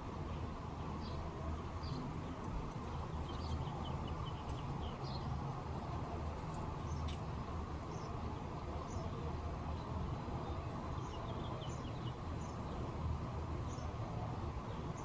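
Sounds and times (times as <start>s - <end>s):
small birds chirping: 2.9s - 7.2s, 10.4s - 12.9s.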